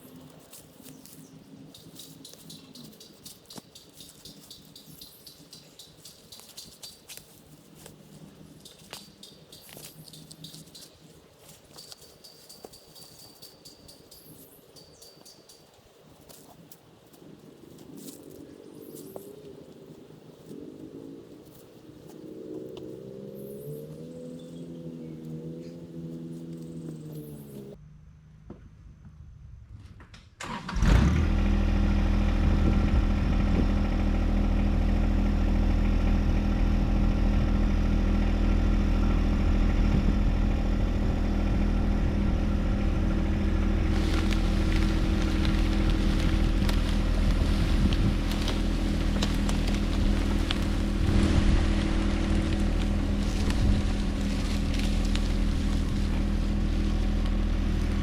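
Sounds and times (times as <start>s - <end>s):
tractor diesel engine starting and running: 30.4s - 58.0s.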